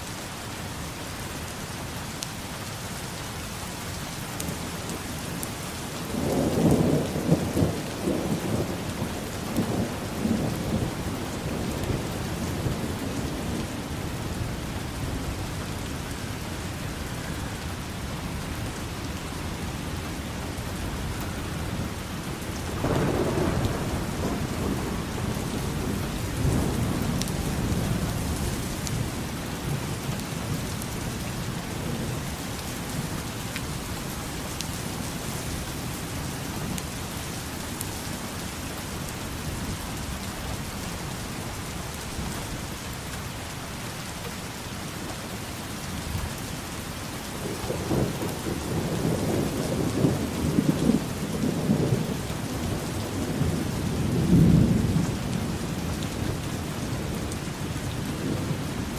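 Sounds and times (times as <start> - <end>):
steady rain falling: 0.0 - 58.9
thunder rumbling: 6.0 - 15.5, 20.6 - 32.3, 47.4 - 58.9.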